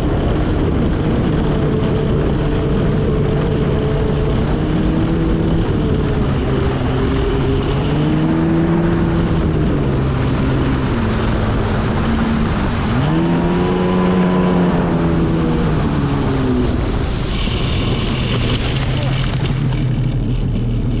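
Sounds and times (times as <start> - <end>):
jet ski engine: 0.0 - 21.0
water and wind hiss: 8.6 - 19.7.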